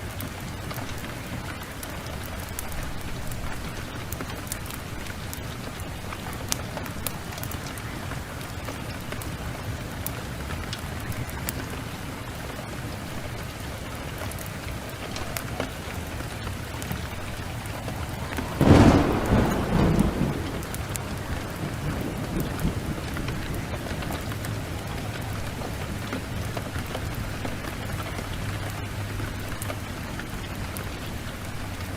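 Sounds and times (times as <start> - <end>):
steady rain falling: 0.0 - 31.9
thunder rolling: 15.0 - 27.9.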